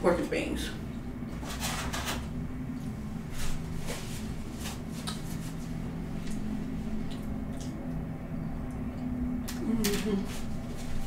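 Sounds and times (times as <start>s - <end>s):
steady low hum: 0.0s - 11.0s
wet chewing: 6.2s - 8.1s.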